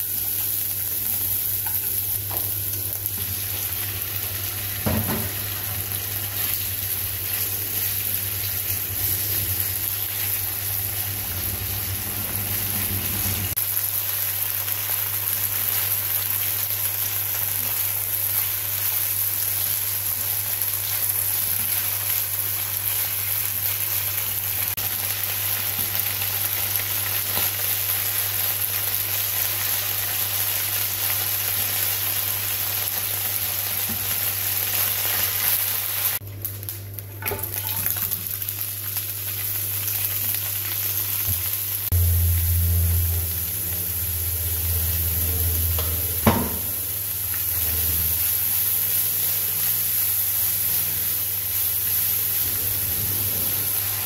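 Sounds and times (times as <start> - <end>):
food sizzling in a frying pan: 0.0 - 54.0
low hum: 2.3 - 13.6, 41.9 - 49.6
sharp knock: 45.8 - 46.7.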